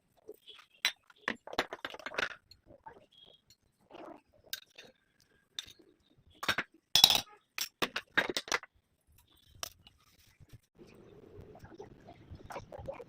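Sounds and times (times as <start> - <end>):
kitchenware clinking: 6.4 - 8.6.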